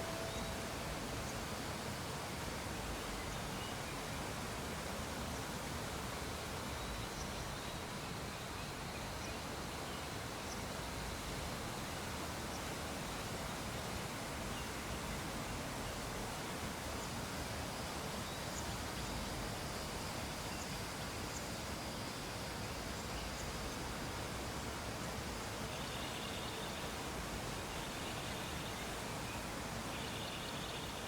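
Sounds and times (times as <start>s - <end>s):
faint high chirping: 0.0s - 1.4s
background hiss: 0.0s - 31.0s.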